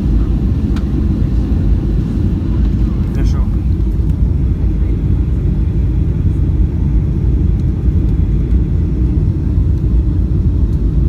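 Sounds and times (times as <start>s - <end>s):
aircraft cabin engine rumble: 0.0s - 11.0s.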